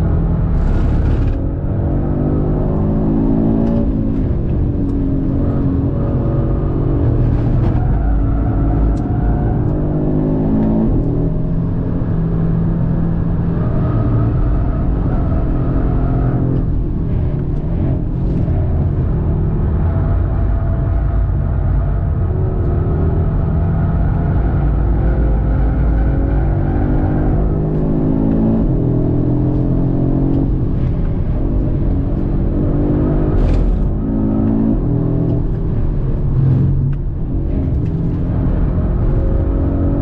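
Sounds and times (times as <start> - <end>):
car engine revving hard: 22.5 - 40.0.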